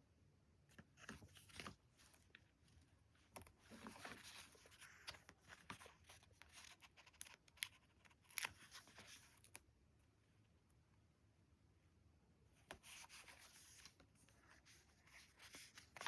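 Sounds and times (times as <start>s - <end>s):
paper crinkling and rustling: 0.7s - 2.4s, 3.3s - 9.6s, 12.7s - 16.0s.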